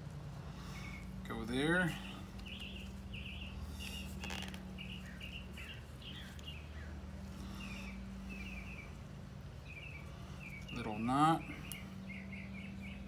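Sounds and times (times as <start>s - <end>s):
steady low hum: 0.0s - 13.0s
small songbird chirping: 0.5s - 13.0s
brief rustle: 3.8s - 4.7s.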